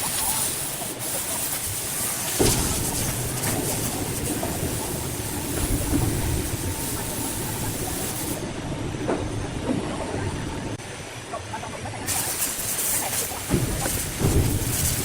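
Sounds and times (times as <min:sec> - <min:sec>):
heavy machinery rumbling: 0:00.0 - 0:11.0, 0:12.1 - 0:15.0
knocks and clatter: 0:13.5 - 0:15.0.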